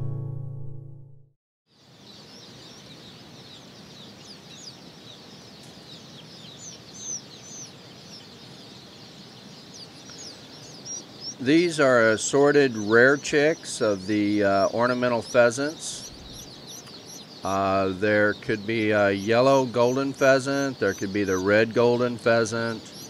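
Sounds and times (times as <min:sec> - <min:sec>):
chicks peeping: 0:01.7 - 0:23.0
steady hiss: 0:10.0 - 0:16.2.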